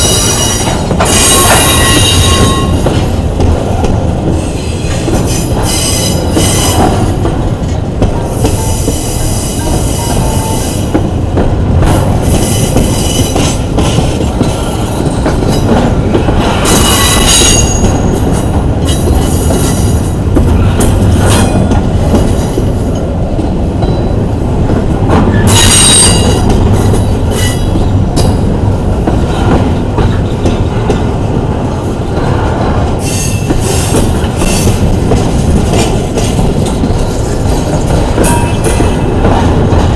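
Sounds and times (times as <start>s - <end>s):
steel wheels squealing on rail: 0.0s - 3.0s, 4.4s - 7.2s, 8.3s - 11.0s, 12.2s - 21.7s, 25.3s - 27.8s, 33.0s - 34.9s, 38.2s - 39.2s.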